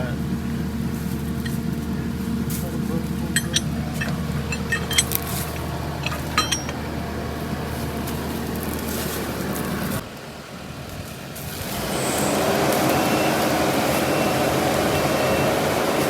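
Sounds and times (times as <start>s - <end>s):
vehicle engine under load: 0.0s - 16.0s
metallic clinks: 1.3s - 1.9s, 3.0s - 7.0s.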